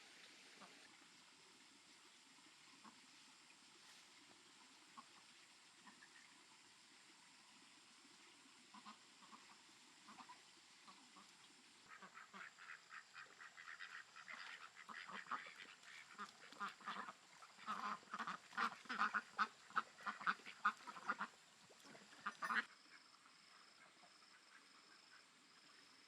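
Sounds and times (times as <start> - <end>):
ducks quacking: 11.9 - 23.0.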